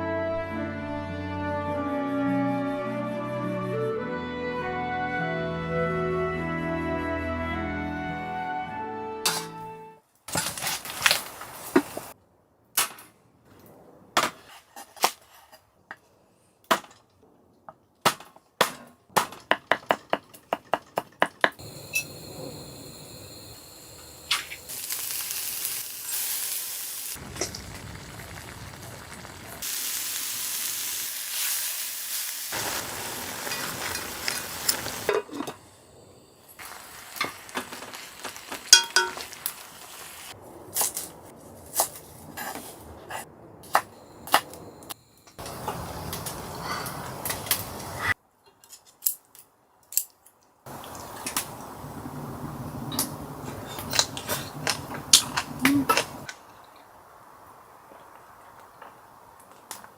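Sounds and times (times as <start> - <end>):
food sizzling and frying: 10.8 - 12.2, 21.6 - 40.4, 50.7 - 56.3
utensils clinking on pots: 38.7 - 39.4.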